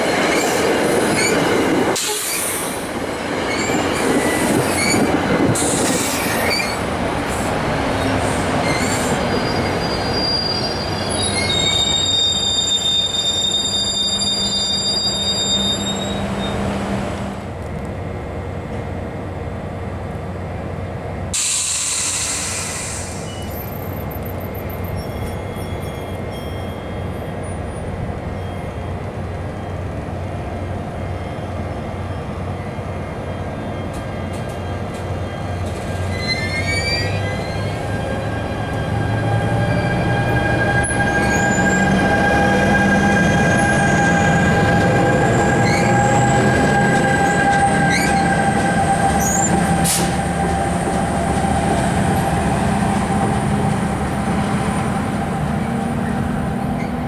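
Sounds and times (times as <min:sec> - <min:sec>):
short squeals: 0:08.7 - 0:16.7, 0:35.3 - 0:37.9
train wheels rumbling: 0:29.0 - 0:57.0.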